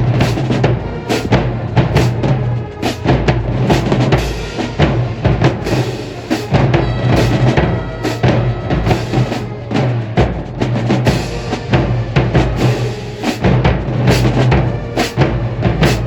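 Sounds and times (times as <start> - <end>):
bass and snare drums beating: 0.0 - 16.0
marching band playing: 0.0 - 16.0
low sustained horn tones: 6.5 - 10.3.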